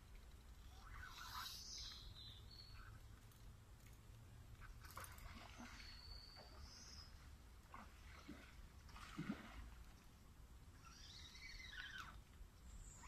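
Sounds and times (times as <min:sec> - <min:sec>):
high bird whistles: 0:00.7 - 0:03.0.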